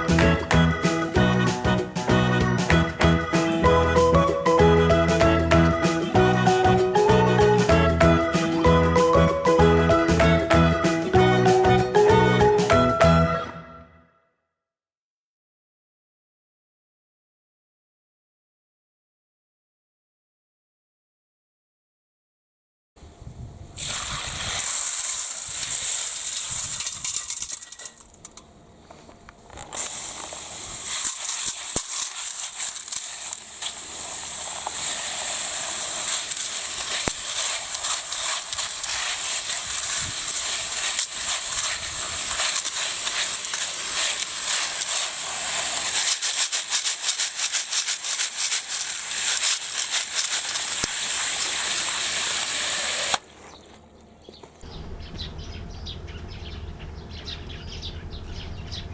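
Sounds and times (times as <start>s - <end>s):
water splashing into a birdbath: 23.8s - 28.4s, 29.8s - 53.4s.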